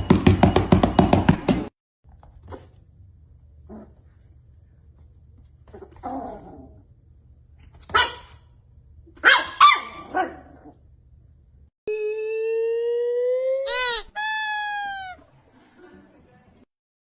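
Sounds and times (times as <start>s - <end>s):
dog barking: 7.9s - 8.5s, 9.2s - 10.6s
loud rising tone: 11.9s - 13.7s.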